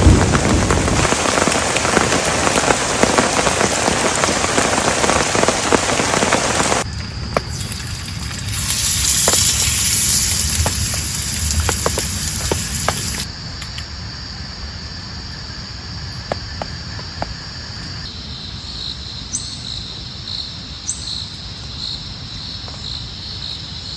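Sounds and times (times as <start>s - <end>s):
heavy rain: 0.0s - 13.8s
insects chirping: 1.3s - 23.9s.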